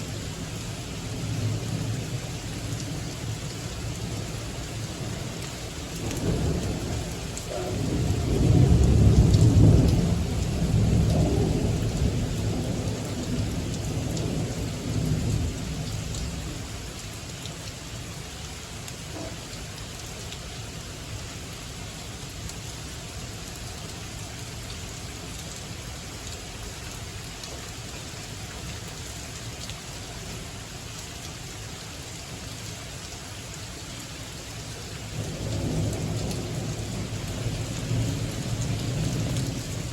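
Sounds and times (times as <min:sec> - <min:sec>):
steady rain: 0:00.0 - 0:39.9
thunder rumbling: 0:05.9 - 0:16.4, 0:35.2 - 0:39.9.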